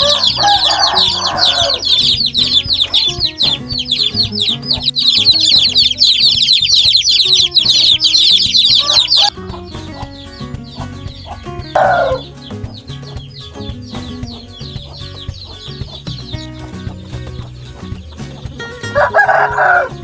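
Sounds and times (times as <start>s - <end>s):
chicken call: 0.0s - 10.1s, 10.8s - 12.3s, 18.8s - 20.0s
background music: 0.0s - 20.0s
chickens chirping: 0.0s - 20.0s.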